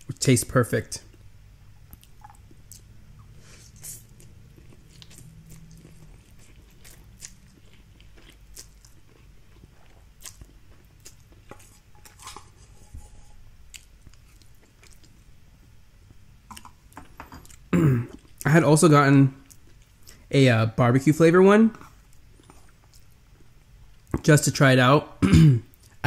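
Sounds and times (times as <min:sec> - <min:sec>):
faint low hum: 0:00.0 - 0:26.0
chewing noodles: 0:03.6 - 0:12.5, 0:13.7 - 0:15.2.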